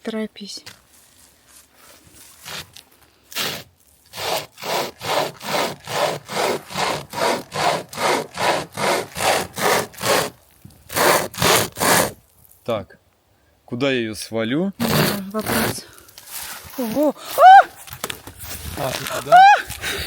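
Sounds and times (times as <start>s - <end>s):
hand saw cutting wood: 2.4s - 12.2s, 14.8s - 17.0s.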